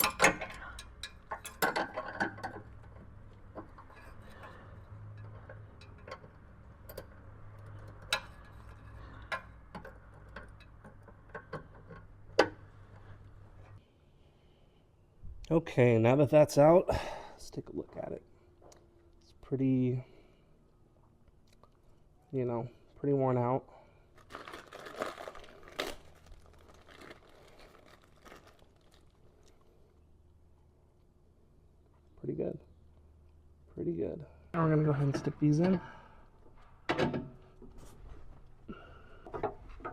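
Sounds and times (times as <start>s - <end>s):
packaging rustling and crinkling: 24.1s - 29.7s.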